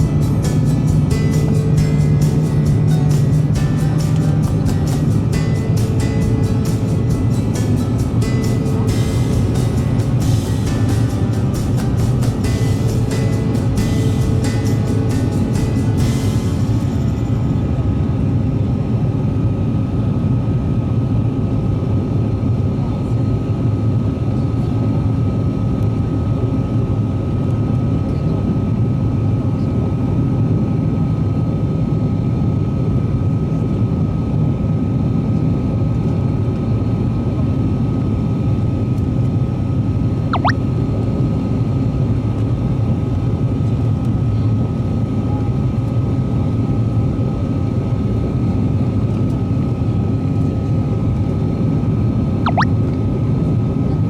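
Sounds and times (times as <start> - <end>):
thin constant whine: 0.0 - 20.5
turboprop cabin engine rumble: 0.0 - 28.8.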